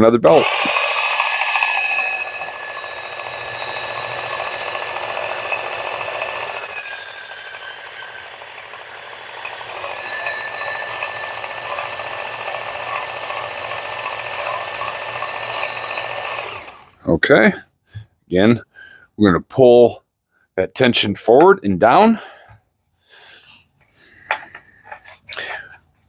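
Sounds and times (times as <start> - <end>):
blade grinding on abrasive belt: 0.3 - 16.9
sharpener motor whine: 0.4 - 16.9.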